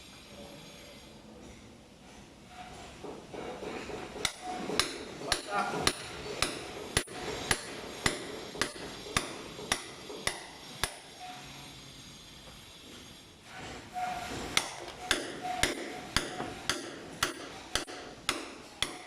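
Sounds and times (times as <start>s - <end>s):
hammer blows: 3.0s - 11.7s, 12.4s - 19.0s.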